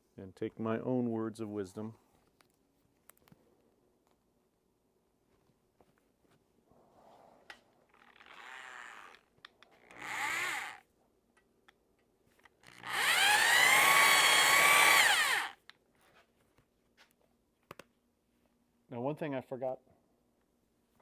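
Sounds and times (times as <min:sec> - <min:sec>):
electric drill honing metal bore: 0:09.8 - 0:10.8, 0:12.7 - 0:15.6.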